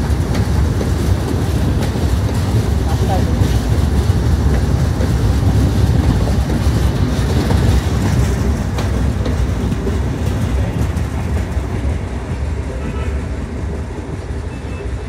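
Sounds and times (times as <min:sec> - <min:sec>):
passenger train rumbling and rattling: 0:00.0 - 0:15.0.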